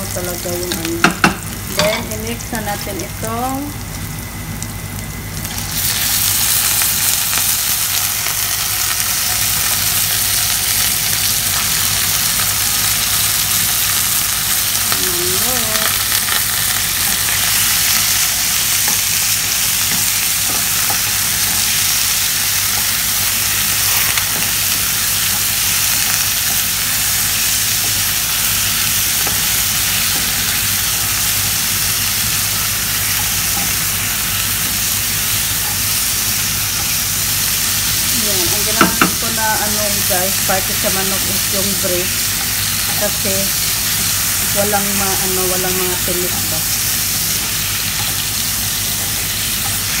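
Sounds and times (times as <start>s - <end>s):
chicken sizzling in hot oil: 0.0s - 50.0s.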